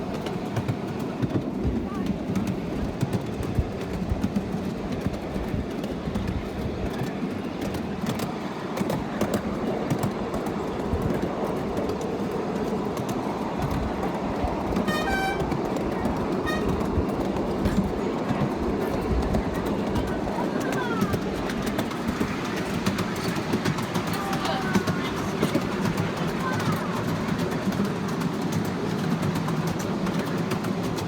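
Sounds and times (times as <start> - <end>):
miniature train rumbling on track: 0.0 - 31.0
train wheels clicking: 0.0 - 31.0
train horn toot: 14.8 - 17.0.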